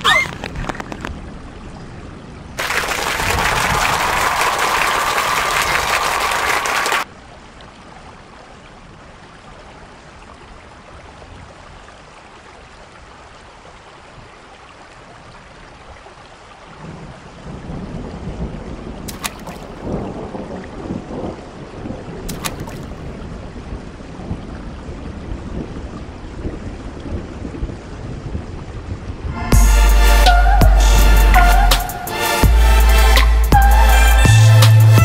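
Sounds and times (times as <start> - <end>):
wind rumbling on microphone: 0.0 - 6.4, 12.9 - 29.6
heavy rain: 0.0 - 35.0.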